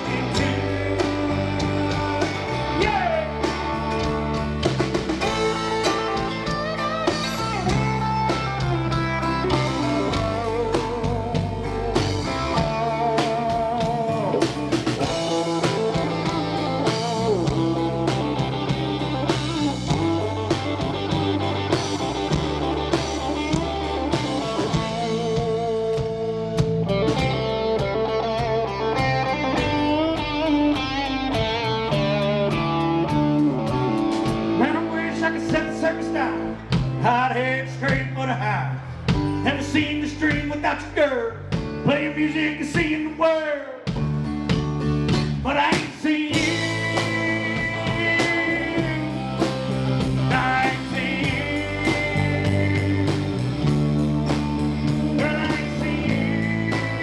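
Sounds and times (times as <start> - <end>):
lead guitar solo: 0.0 - 14.4, 15.0 - 36.7
bass guitar: 0.0 - 57.0
drums: 0.0 - 57.0.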